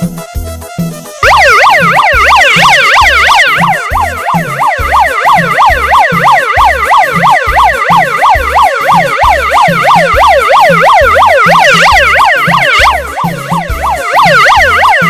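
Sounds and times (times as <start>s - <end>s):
low thudding beat: 1.2s - 15.0s
megaphone siren wailing: 1.2s - 15.0s.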